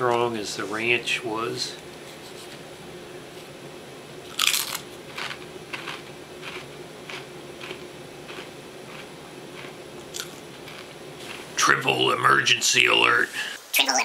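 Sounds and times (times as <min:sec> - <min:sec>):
chip crunching: 0:04.2 - 0:12.2.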